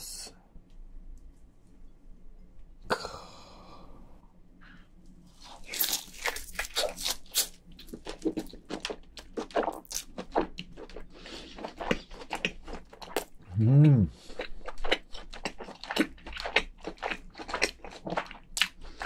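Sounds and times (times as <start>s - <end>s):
wet crunchy chewing: 5.4s - 19.0s.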